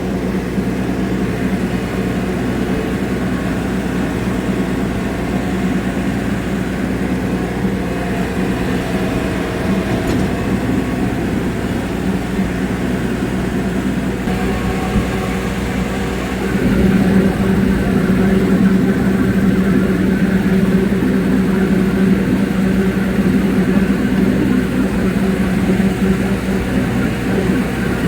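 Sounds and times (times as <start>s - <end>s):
tractor engine under load: 0.0s - 28.0s.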